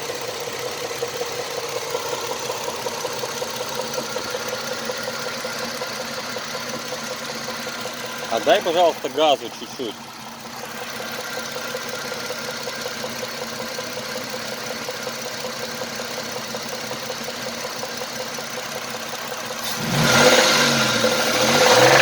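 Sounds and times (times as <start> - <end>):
car engine knocking: 0.0 - 22.0.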